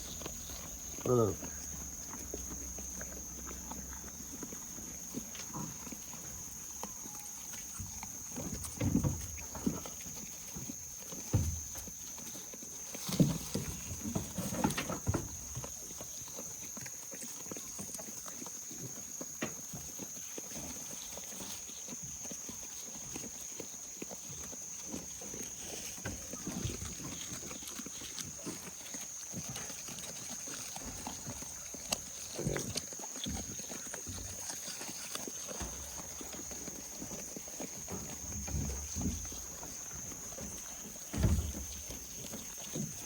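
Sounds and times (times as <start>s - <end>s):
goats scuffling: 0.0s - 43.0s
hooves clattering and knocking: 0.0s - 43.0s.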